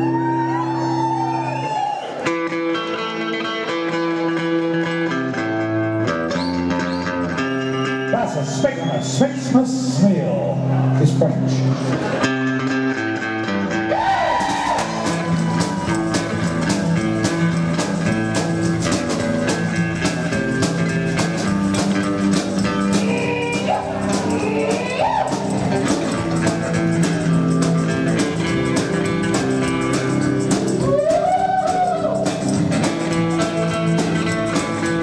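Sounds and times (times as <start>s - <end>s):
rockabilly band playing: 11.7s - 35.0s.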